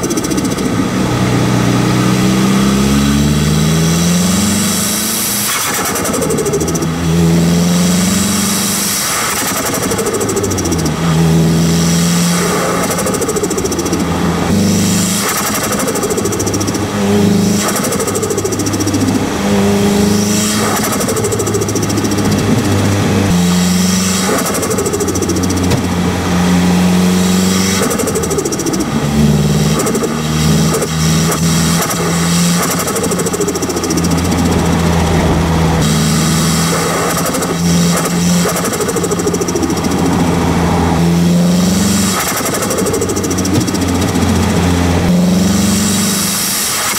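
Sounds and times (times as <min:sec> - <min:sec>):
turbo flutter chatter: 0:00.0 - 0:01.0, 0:08.8 - 0:11.1, 0:11.8 - 0:40.9, 0:41.8 - 0:45.1
turbocharged engine revving: 0:00.0 - 0:46.9.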